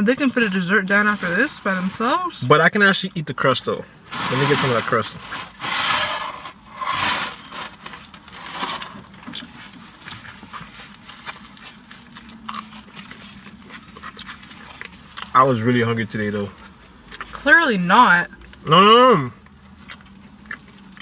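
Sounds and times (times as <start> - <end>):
crunching pizza crust: 4.1 - 17.4.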